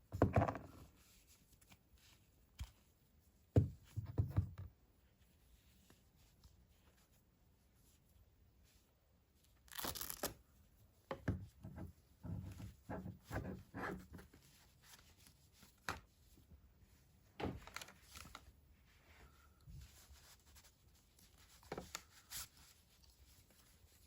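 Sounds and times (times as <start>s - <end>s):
packaging tearing: 9.7s - 10.4s.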